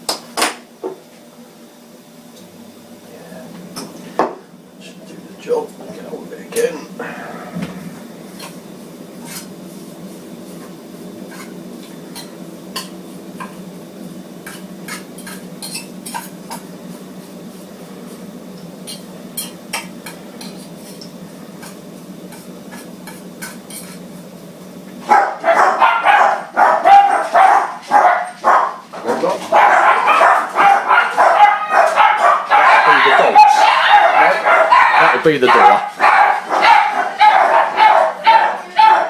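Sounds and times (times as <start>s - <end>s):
dog barking loudly: 25.0s - 39.0s.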